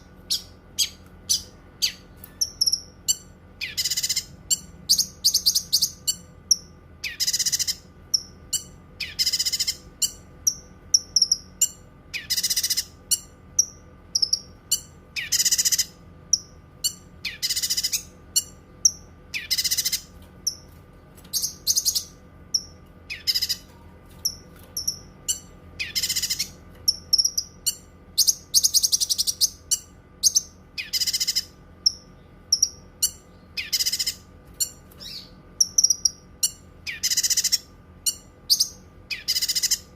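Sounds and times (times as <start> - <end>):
bird singing high phrases: 0.0 - 20.7, 21.3 - 39.9.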